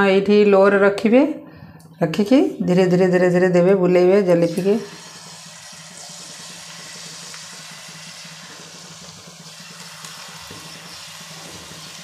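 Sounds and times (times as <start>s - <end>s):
batter sizzling in hot oil: 4.5s - 12.0s.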